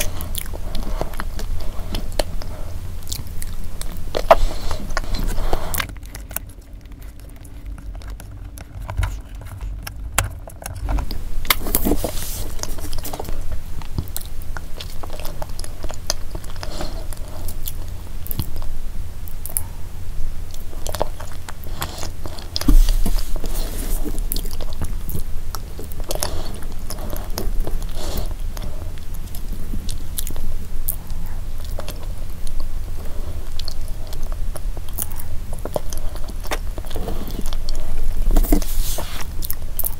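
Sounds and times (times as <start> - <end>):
chewing and lip-smacking: 0.0 - 39.9.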